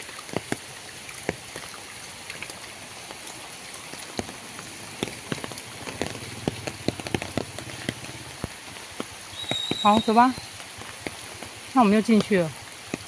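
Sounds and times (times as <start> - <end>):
rain falling: 0.0 - 13.0
drops tapping on surfaces: 5.0 - 10.2.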